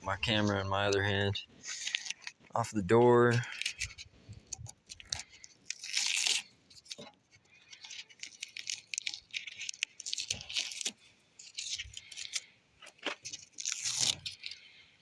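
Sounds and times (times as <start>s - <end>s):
paper crinkling: 0.0s - 15.0s
masking tape ripping: 5.0s - 7.0s, 8.1s - 14.6s.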